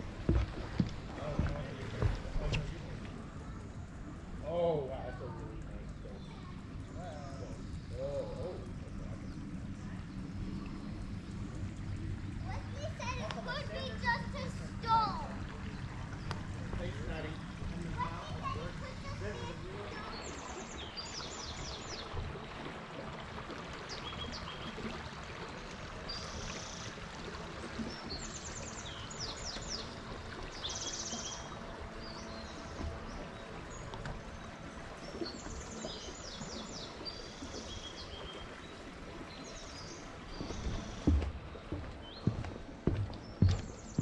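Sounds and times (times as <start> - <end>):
birds singing: 5.0 - 22.7, 23.7 - 44.0.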